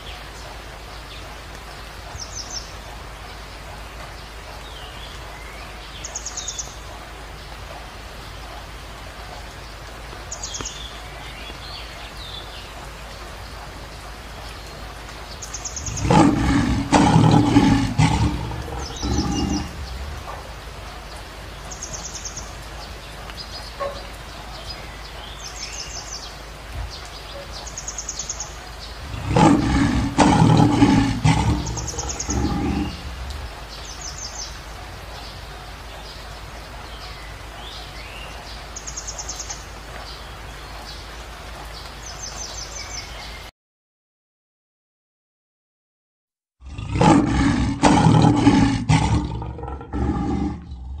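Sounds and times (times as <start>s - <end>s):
background hiss: 0.0s - 43.5s, 46.7s - 51.0s
lion roaring: 15.8s - 20.6s, 29.0s - 33.7s, 46.6s - 51.0s.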